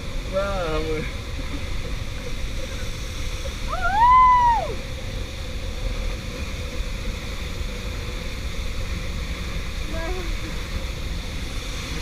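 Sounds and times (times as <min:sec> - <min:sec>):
waterfall rushing: 0:03.4 - 0:05.0
person whooping: 0:03.7 - 0:04.8.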